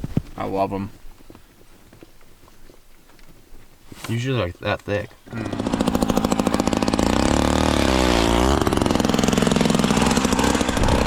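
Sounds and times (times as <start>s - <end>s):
engine running and revving: 5.3s - 11.0s.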